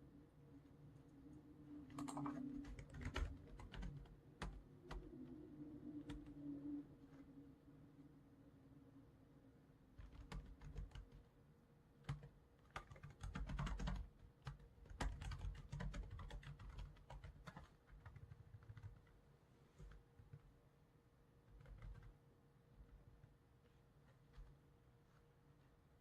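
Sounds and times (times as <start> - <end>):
faint steady hum: 0.0 - 26.0
keyboard typing: 1.9 - 5.1, 6.0 - 6.4, 10.0 - 11.2, 12.0 - 19.2, 21.5 - 22.2.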